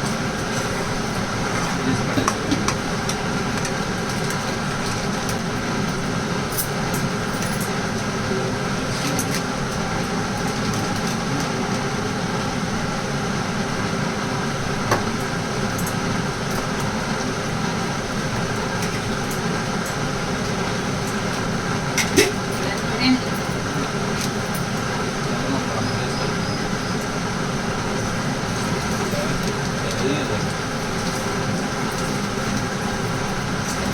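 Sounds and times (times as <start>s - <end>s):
mechanical hum: 0.0s - 33.9s.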